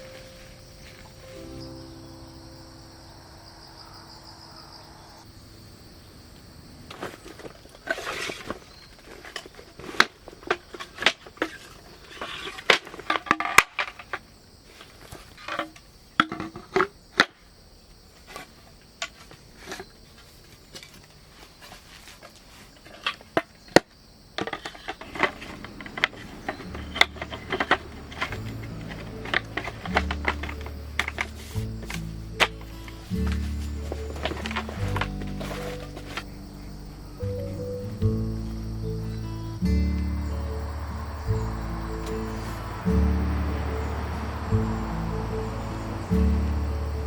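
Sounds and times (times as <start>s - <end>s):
background music: 0.0s - 4.3s, 26.0s - 47.0s
objects being handled clicking: 22.8s - 36.3s.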